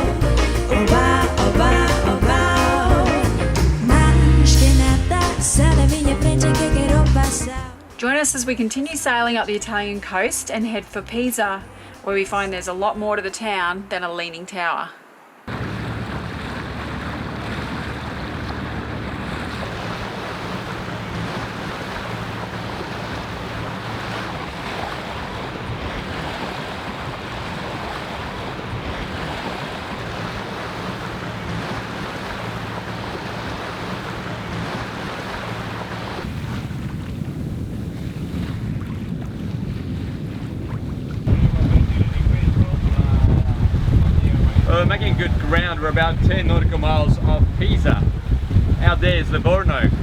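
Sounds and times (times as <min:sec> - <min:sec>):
water rushing along hull: 0:00.0 - 0:50.0
low hum: 0:15.5 - 0:24.6
wind buffeting microphone: 0:15.5 - 0:50.0.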